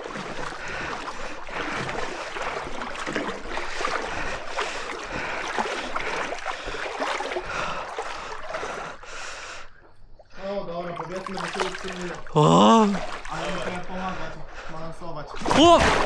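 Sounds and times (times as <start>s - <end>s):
wading through shallow water: 0.0s - 16.0s.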